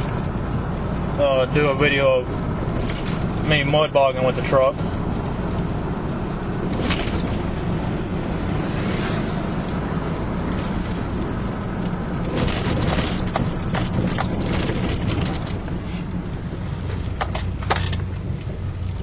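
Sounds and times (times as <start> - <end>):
pickup truck engine rumble: 0.0 - 19.0
knocks and rattles: 10.4 - 15.8.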